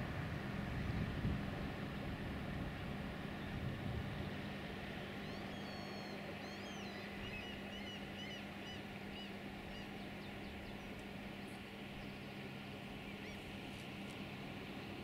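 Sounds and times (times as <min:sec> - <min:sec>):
low steady hum: 0:00.0 - 0:15.0
bird chirping: 0:05.2 - 0:10.9.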